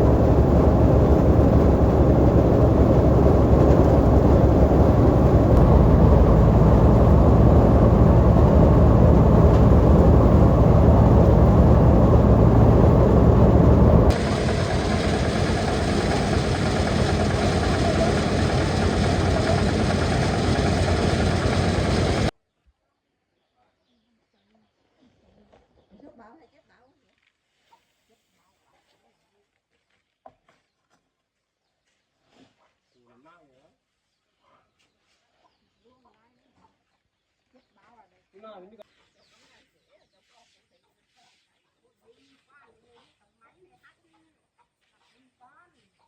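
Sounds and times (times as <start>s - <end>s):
motor running steadily: 0.0s - 22.3s.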